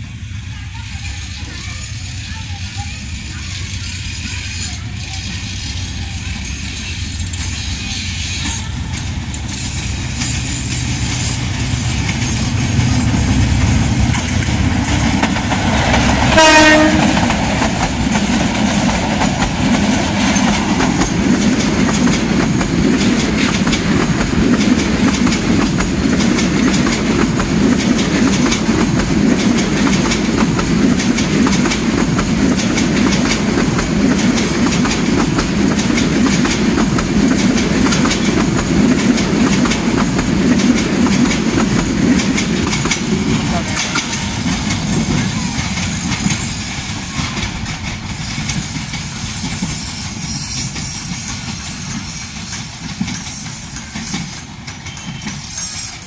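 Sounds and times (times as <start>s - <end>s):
train rumbling: 0.0s - 56.0s
wheels clattering over rail joints: 2.3s - 56.0s
train horn blast: 16.2s - 17.3s.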